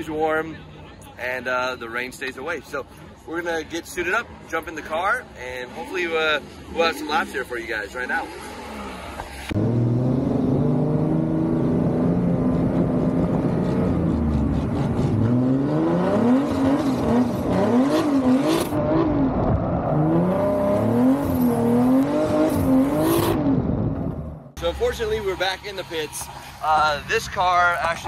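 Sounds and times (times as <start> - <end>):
turbocharged engine revving: 9.5 - 24.3.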